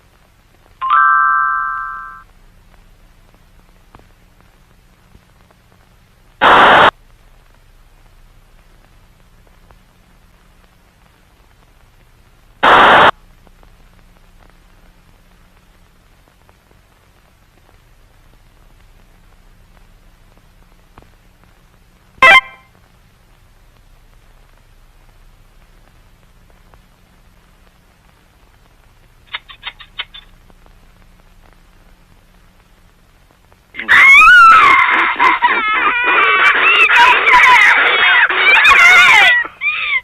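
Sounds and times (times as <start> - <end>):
faint low hum: 0.0 - 40.0
loud bursts of static: 0.0 - 40.0
short electronic tone: 0.8 - 2.2.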